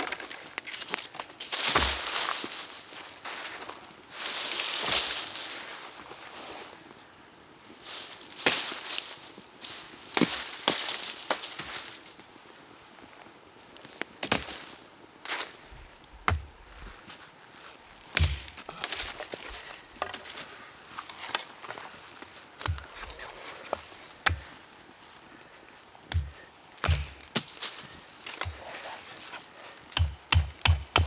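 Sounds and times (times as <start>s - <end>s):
rustling in dry leaves: 0.0s - 30.0s
wood knocking and cracking: 16.2s - 16.6s, 18.1s - 20.3s, 22.6s - 23.0s, 23.7s - 24.5s, 26.1s - 27.6s, 30.0s - 31.0s.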